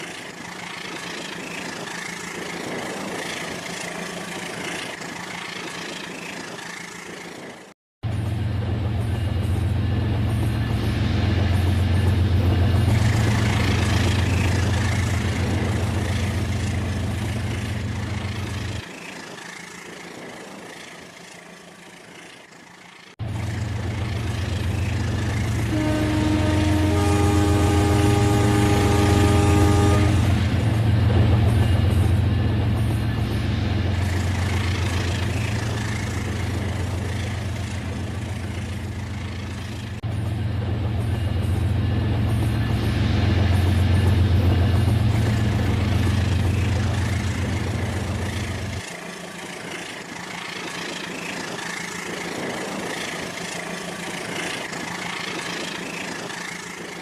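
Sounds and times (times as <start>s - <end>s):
train horn chord: 25.6s - 30.4s.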